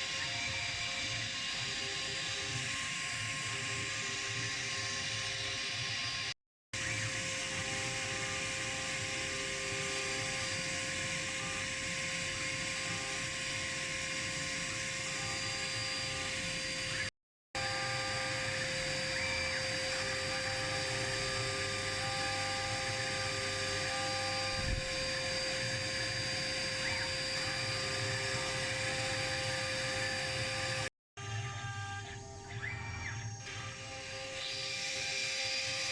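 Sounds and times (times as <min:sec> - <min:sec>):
router spindle high whine: 0:00.0 - 0:35.9
shorter machine tones: 0:14.3 - 0:35.9.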